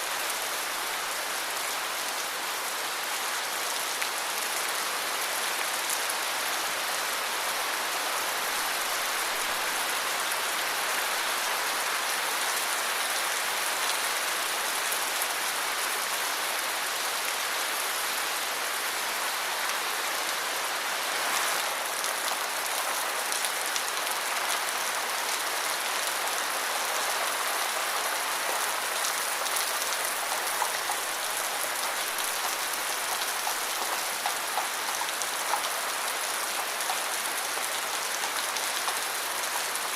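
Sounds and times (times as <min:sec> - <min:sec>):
rain pattering: 0:21.2 - 0:39.9.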